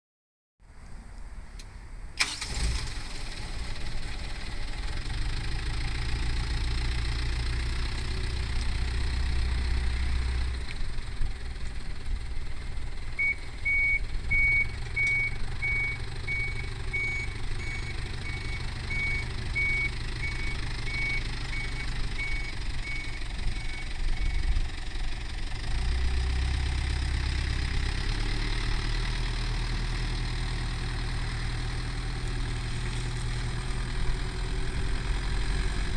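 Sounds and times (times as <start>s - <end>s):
diesel truck engine idling: 2.2s - 35.9s
reversing warning beeps: 13.2s - 24.5s.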